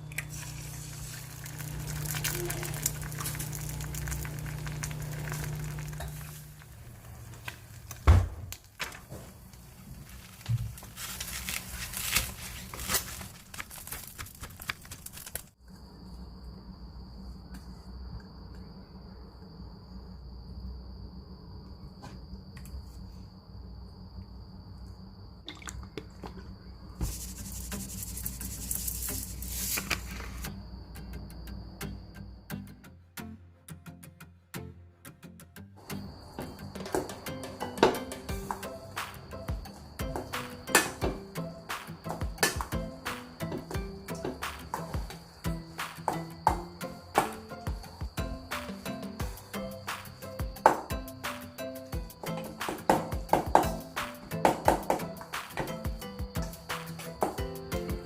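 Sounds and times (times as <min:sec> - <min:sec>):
food crackling and bubbling: 0:00.0 - 0:08.8, 0:25.4 - 0:26.5
dull thump: 0:08.0 - 0:08.5
steady low hum: 0:15.6 - 0:32.5.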